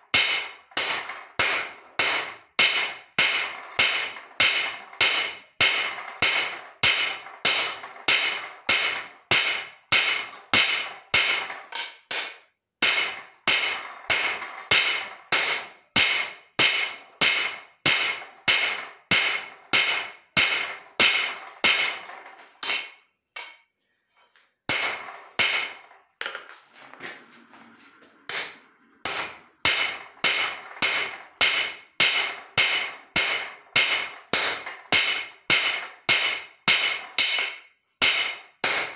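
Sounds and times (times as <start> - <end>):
hammer ringing on steel on anvil: 28.3 - 38.9.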